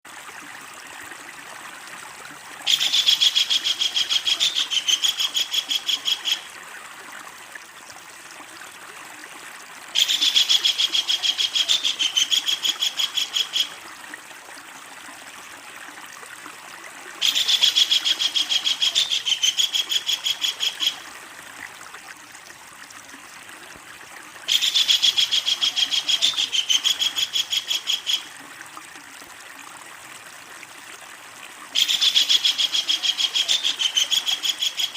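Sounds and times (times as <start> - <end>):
stream running: 0.0 - 34.9
kingfisher rattling call: 24.5 - 28.3, 31.8 - 34.9.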